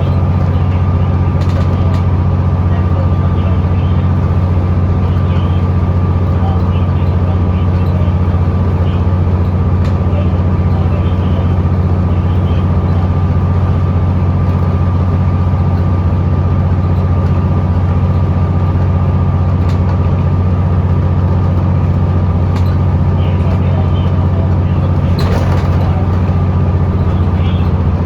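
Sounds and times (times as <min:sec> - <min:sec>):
bus engine droning: 0:00.0 - 0:28.0
driveline whine: 0:00.0 - 0:28.0.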